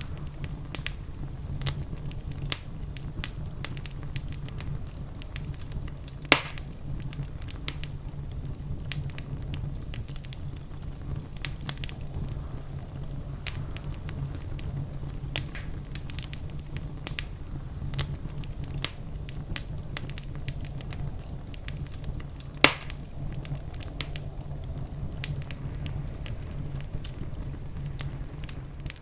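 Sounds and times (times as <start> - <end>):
fireplace fire crackling: 0.0 - 29.0
loud fire pop: 5.4 - 7.9, 11.1 - 29.0.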